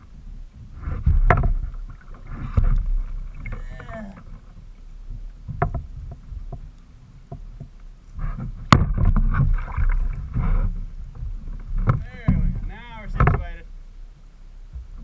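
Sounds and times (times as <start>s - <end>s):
rough rustling and scraping: 0.0s - 15.0s
knocks against kayak hull: 1.0s - 3.6s, 5.4s - 6.7s, 8.4s - 10.6s, 11.2s - 13.6s.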